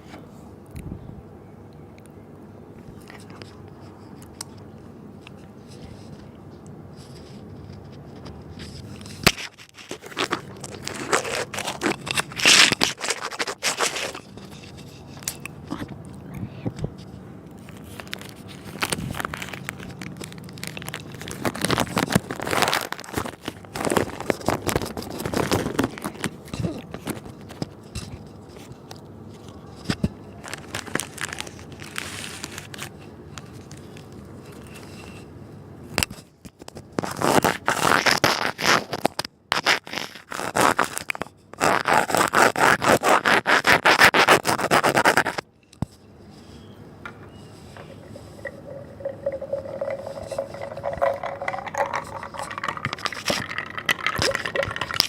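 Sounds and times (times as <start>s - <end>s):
crunching cookies: 8.8s - 16.3s, 17.5s - 27.8s, 29.4s - 34.8s, 36.5s - 45.5s, 48.2s - 55.0s.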